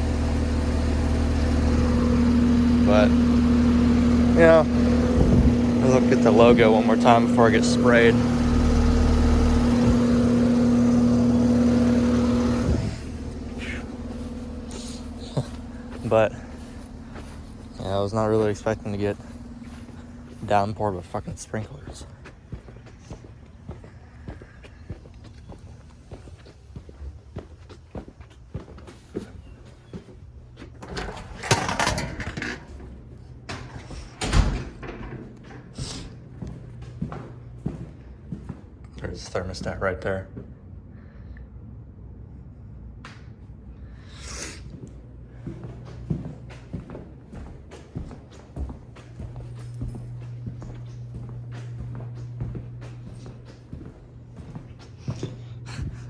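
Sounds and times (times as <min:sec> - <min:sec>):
compressor hum: 0:00.0 - 0:56.0
fan rushing air: 0:00.0 - 0:56.0
footstep-like clicks: 0:05.2 - 0:38.5, 0:45.5 - 0:56.0.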